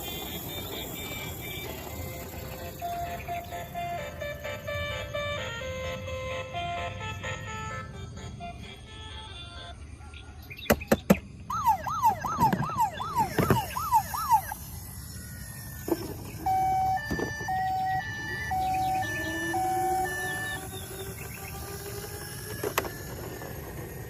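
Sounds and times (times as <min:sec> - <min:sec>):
toy siren wailing: 0:00.0 - 0:10.5, 0:11.4 - 0:24.0
electronic beeping tones: 0:11.5 - 0:22.1.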